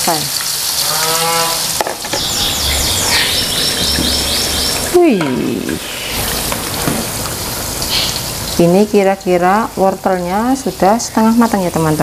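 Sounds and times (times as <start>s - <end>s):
tofu sizzling in oil: 0.0s - 12.0s
bird chirping: 2.0s - 6.8s, 7.9s - 8.5s.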